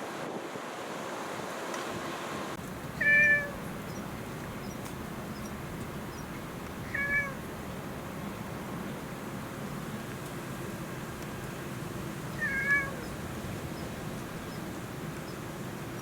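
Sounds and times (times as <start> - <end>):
cat meowing: 3.0 - 3.6, 6.8 - 7.5, 12.3 - 13.2.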